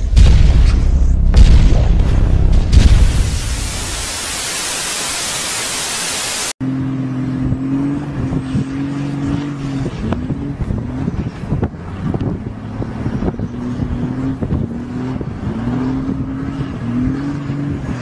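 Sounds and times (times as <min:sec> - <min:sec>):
loud rushing hiss: 0:00.0 - 0:06.6
car engine at high revs: 0:00.0 - 0:18.0.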